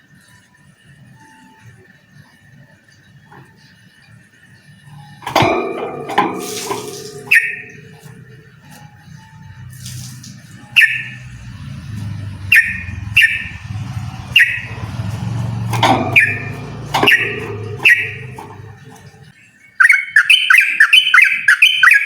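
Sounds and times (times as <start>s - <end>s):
low steady hum: 4.7s - 19.3s
bird singing bubbly phrases: 5.8s - 15.1s, 15.7s - 22.0s.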